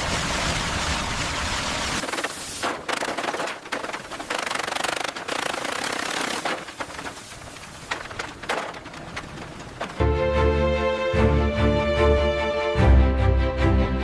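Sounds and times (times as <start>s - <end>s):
power tool rattling: 2.8s - 10.0s.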